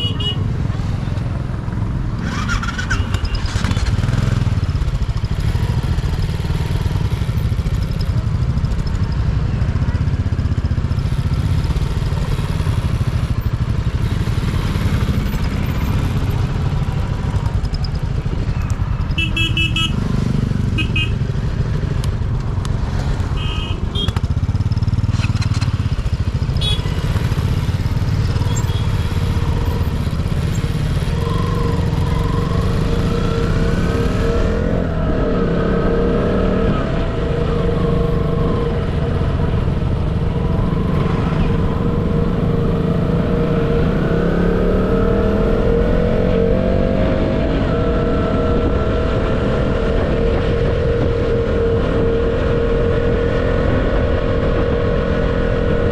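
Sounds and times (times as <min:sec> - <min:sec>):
motorcycle engine running: 0:00.0 - 0:55.9
wind rumble on microphone: 0:44.9 - 0:55.9.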